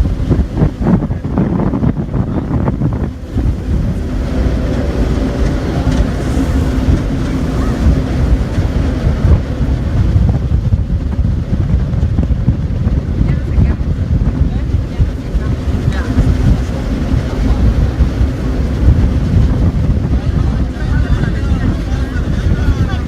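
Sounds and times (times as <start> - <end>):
boat engine running: 0.0 - 23.0
wind buffeting microphone: 0.0 - 23.0.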